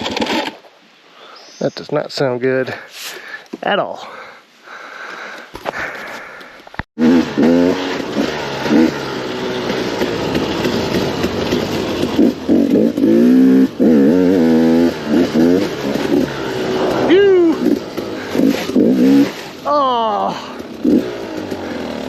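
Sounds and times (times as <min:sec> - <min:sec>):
dirt bike engine revving: 0:07.0 - 0:22.0.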